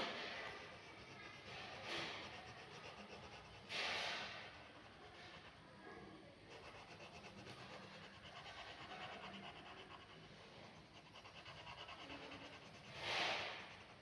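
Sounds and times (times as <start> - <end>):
pen scratching on paper: 0.0 - 14.0.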